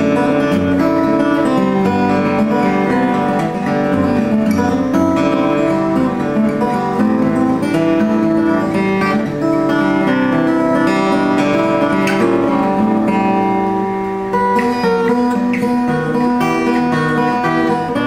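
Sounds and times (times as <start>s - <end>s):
acoustic guitar playing: 0.0s - 18.0s.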